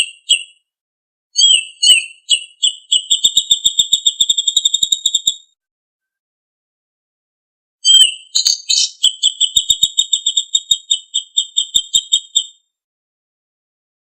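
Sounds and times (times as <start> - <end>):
songbird singing: 1.4 - 5.6, 7.8 - 12.7.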